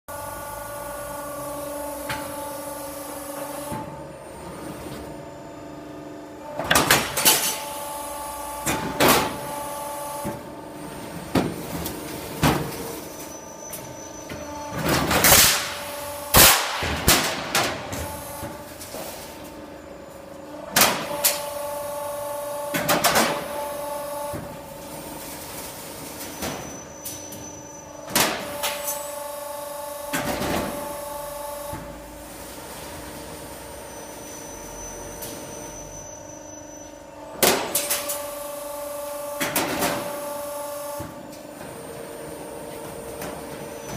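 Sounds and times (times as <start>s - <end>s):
machine hum: 0.1s - 26.2s.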